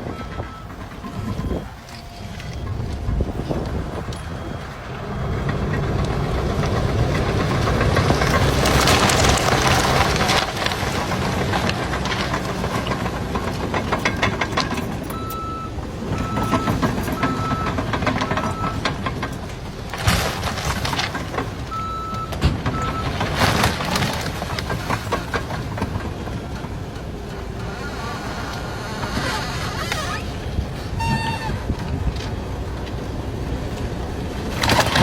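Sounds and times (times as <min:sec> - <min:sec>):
heavy truck engine rumbling: 0:00.0 - 0:35.0
backup alarm beeping: 0:15.1 - 0:18.8.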